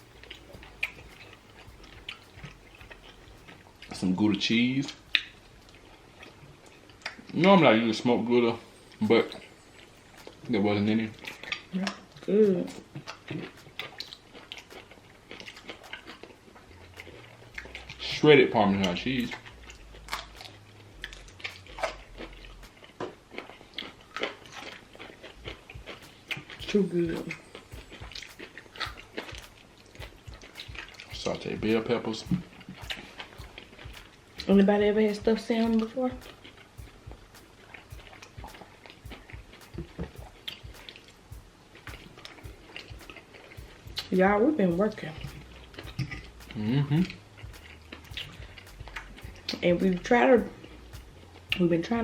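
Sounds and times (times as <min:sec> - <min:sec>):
person chewing food: 0:00.0 - 0:07.4, 0:08.5 - 0:52.0
wet mouth clicks and smacks: 0:11.2 - 0:44.2, 0:45.2 - 0:51.6.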